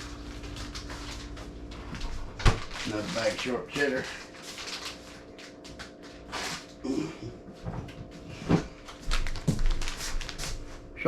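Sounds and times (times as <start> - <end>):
plastic bag crinkling: 0.0 - 6.8, 8.8 - 10.7
faint steady hum: 0.0 - 11.0.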